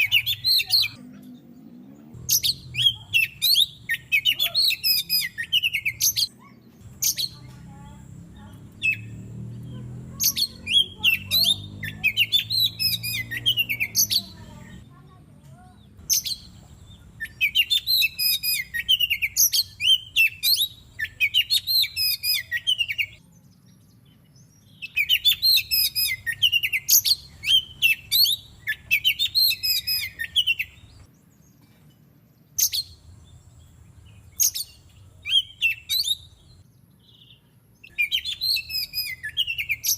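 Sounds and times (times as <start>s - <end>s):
bird singing whistled phrases: 0.0s - 1.0s, 2.3s - 7.5s, 10.1s - 14.4s, 17.2s - 23.2s, 24.6s - 31.0s, 34.3s - 39.9s.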